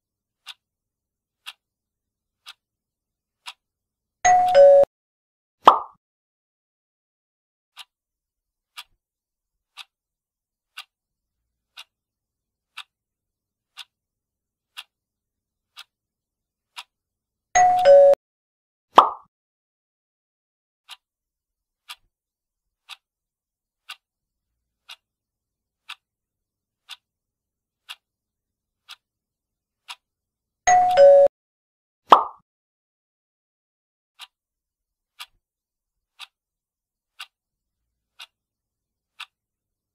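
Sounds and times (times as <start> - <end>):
countdown clock ticking: 4.3 - 4.9, 17.6 - 18.2, 30.7 - 31.3.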